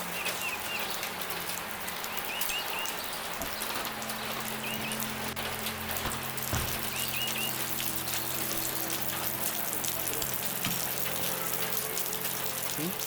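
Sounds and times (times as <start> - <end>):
steady rain falling: 0.0 - 13.0
bird chirping: 2.1 - 9.0.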